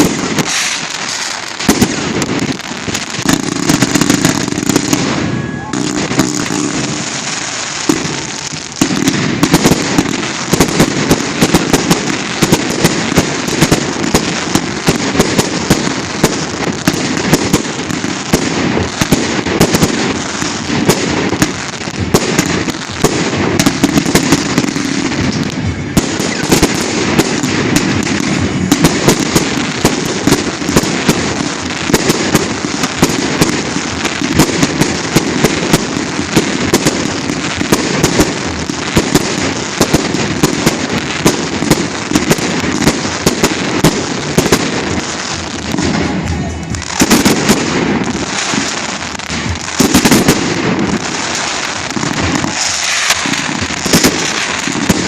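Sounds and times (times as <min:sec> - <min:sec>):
fireworks bangs: 0:00.0 - 0:55.0
fireworks crackle: 0:00.0 - 0:55.0.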